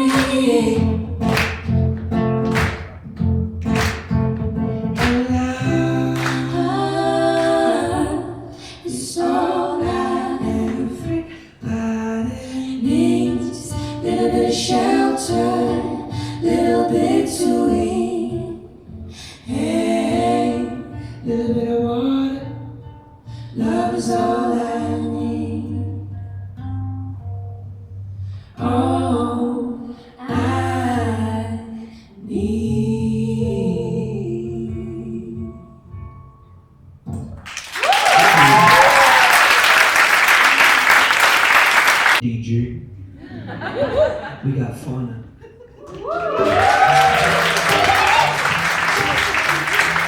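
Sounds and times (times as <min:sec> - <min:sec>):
person singing: 0:00.0 - 0:01.6, 0:05.0 - 0:18.7
acoustic guitar: 0:00.0 - 0:37.7, 0:46.6 - 0:50.0.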